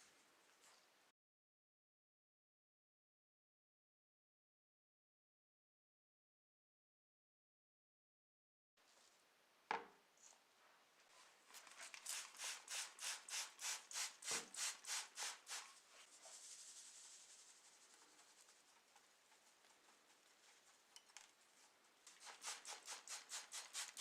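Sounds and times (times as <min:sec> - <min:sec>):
soft hiss: 0:09.9 - 0:24.0
hand rubbing on a surface: 0:14.2 - 0:20.8.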